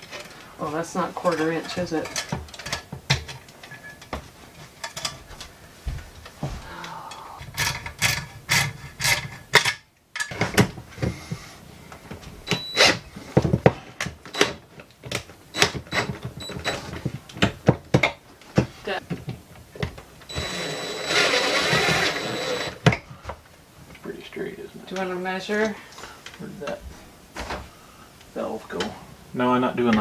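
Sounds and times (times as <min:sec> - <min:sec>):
hand tools clicking and scraping: 0:01.2 - 0:05.3, 0:06.7 - 0:23.1.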